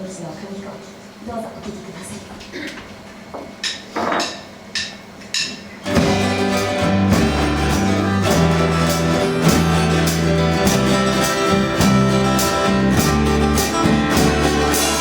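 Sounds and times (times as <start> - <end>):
live band playing pop song: 5.9 - 15.0.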